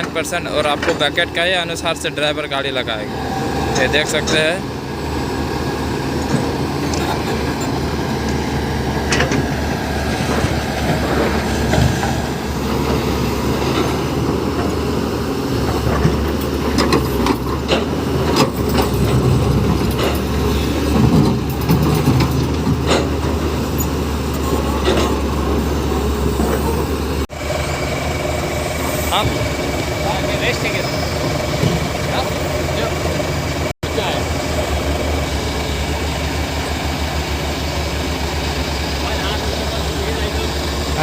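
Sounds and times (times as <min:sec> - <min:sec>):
metal clanks and knocks: 0:00.0 - 0:01.6, 0:06.2 - 0:08.4, 0:09.0 - 0:14.8, 0:15.6 - 0:27.0, 0:30.6 - 0:33.3
excavator engine rumble: 0:00.0 - 0:41.0.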